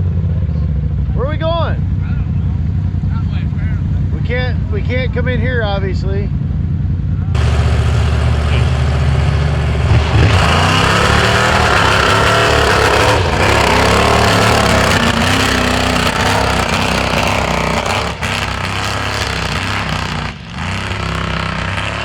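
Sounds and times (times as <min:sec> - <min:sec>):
off-road vehicle engine revving: 0:07.4 - 0:22.0.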